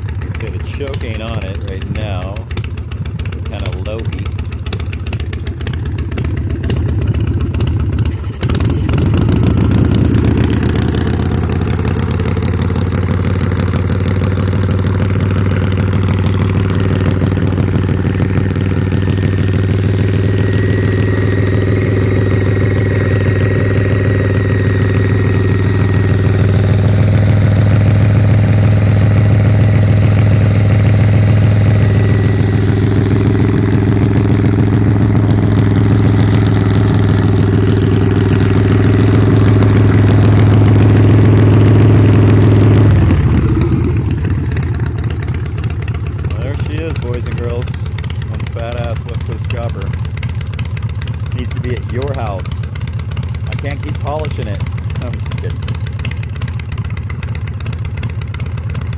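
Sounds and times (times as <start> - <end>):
motorcycle engine idling: 0.0 - 58.9.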